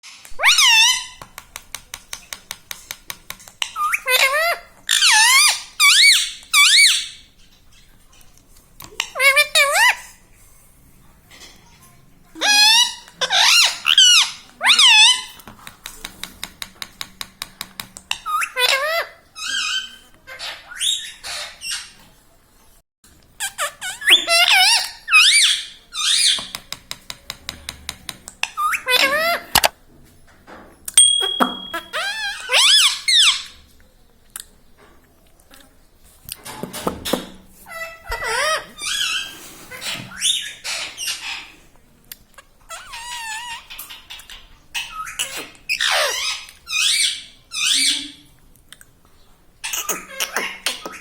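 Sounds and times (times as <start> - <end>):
parrot calling: 0.4 - 1.2, 3.6 - 7.3, 12.4 - 15.3, 18.1 - 22.0, 23.4 - 26.6, 31.0 - 33.6, 37.6 - 41.5, 42.6 - 48.3
parrot whistling and calling: 0.4 - 1.2, 3.8 - 7.2, 31.0 - 33.6
parrot clicking: 0.4 - 4.0, 15.4 - 18.3.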